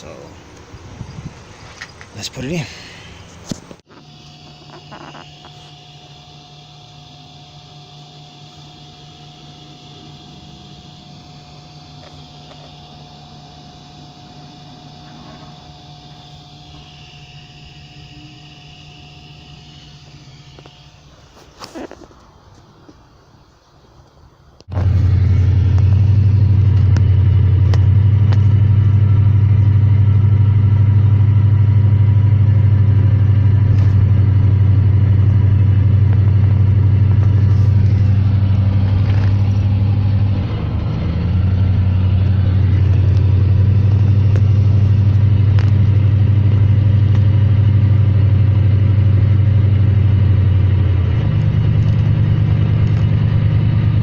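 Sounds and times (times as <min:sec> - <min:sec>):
truck engine idling: 0:24.7 - 0:54.0.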